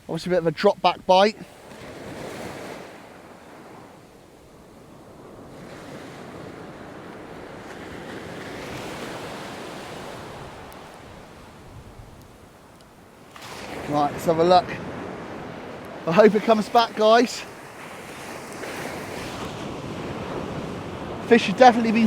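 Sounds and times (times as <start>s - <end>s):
surf breaking on beach: 1.1s - 12.6s, 13.2s - 22.0s
wind on microphone: 1.6s - 16.6s, 17.4s - 22.0s.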